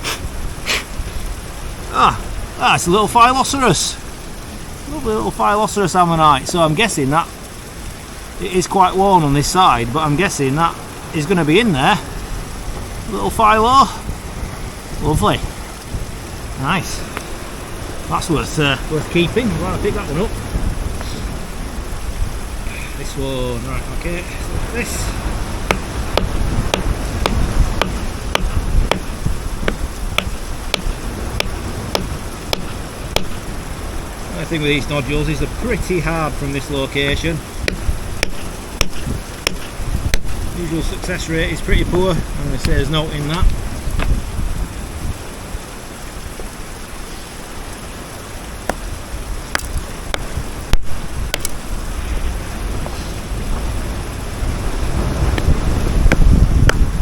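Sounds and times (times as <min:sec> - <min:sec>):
wind rumble on microphone: 0:00.0 - 0:57.0
hammer tapping rock: 0:25.6 - 0:33.5, 0:37.6 - 0:40.4, 0:49.5 - 0:51.6.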